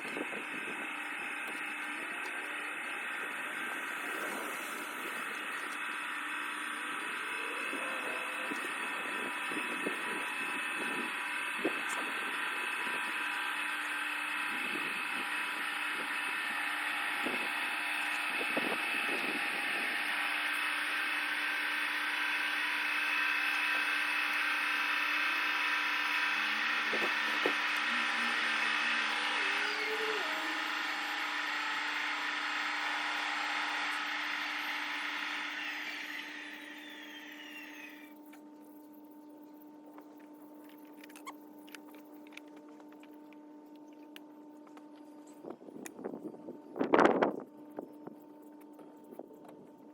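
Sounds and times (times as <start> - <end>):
model train whine: 0.0 - 38.9.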